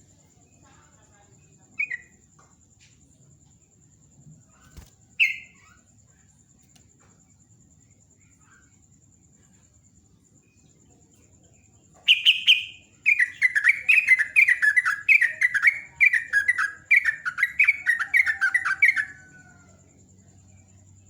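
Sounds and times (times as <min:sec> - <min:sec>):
bulbul singing: 0:00.5 - 0:02.3, 0:04.5 - 0:06.2, 0:10.3 - 0:19.6.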